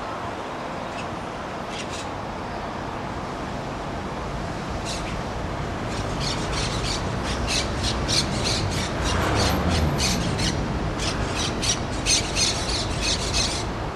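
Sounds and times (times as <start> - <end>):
parrots squawking: 6.1 - 13.7.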